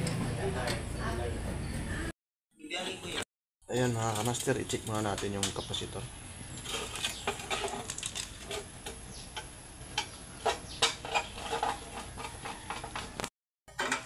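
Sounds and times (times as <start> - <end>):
tools handling metal parts: 3.8 - 5.7, 6.6 - 13.2.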